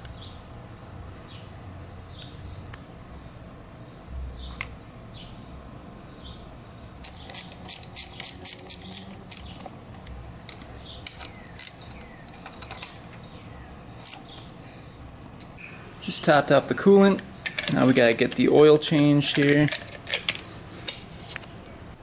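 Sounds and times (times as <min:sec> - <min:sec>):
ratchet wrench clicking: 0:07.0 - 0:13.0.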